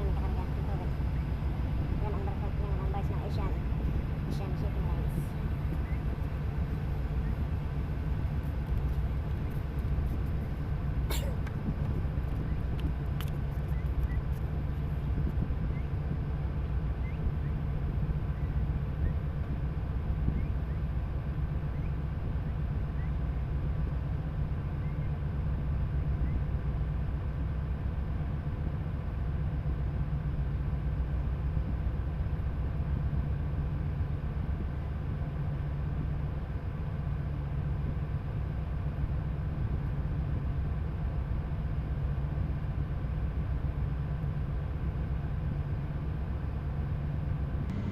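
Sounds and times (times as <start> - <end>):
boat diesel engine drone: 0.0 - 47.9
faint steady tones: 13.6 - 47.9.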